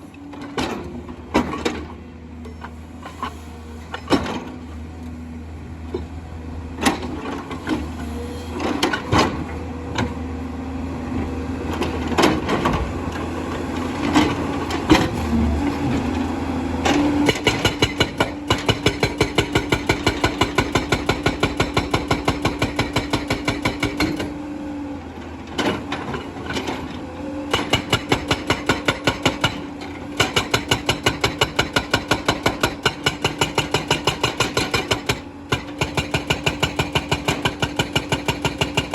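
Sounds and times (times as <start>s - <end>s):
diesel engine running: 10.6s - 18.3s
hydraulic rock breaker hammering: 16.8s - 24.4s, 27.4s - 38.9s.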